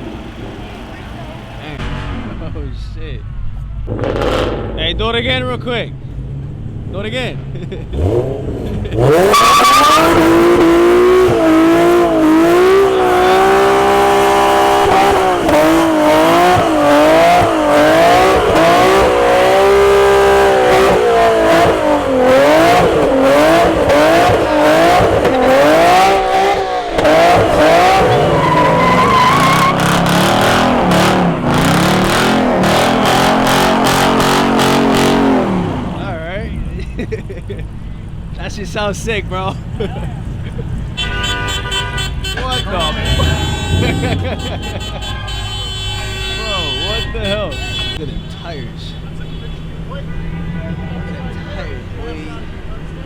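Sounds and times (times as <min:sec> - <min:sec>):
car engine revving hard: 0:03.8 - 0:05.4, 0:06.2 - 0:37.7, 0:42.6 - 0:53.0
tyres squealing: 0:09.0 - 0:36.2, 0:39.5 - 0:53.0.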